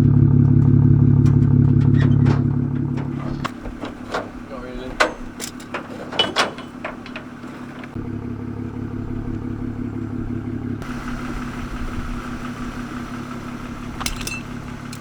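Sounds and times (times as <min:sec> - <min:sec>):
vehicle engine droning: 0:00.0 - 0:15.0.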